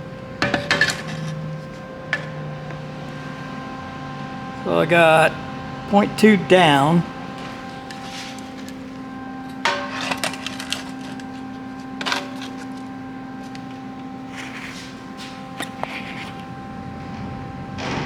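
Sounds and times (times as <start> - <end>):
steady hum: 1.8 - 9.6.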